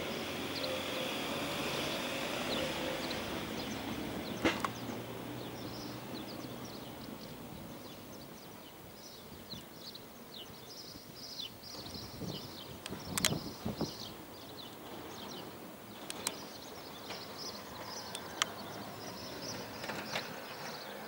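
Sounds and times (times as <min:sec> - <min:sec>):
small birds chirping: 0:00.0 - 0:21.0
click: 0:12.8 - 0:13.4, 0:16.1 - 0:16.4.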